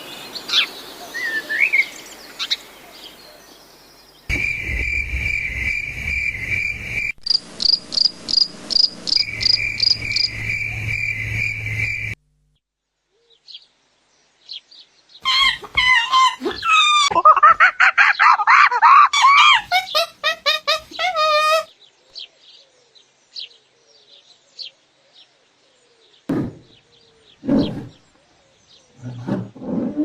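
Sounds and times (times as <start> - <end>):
insects buzzing: 3.5 - 12.2
insect pulsing chirp: 4.3 - 12.2
rapid bird chirps: 4.3 - 12.2.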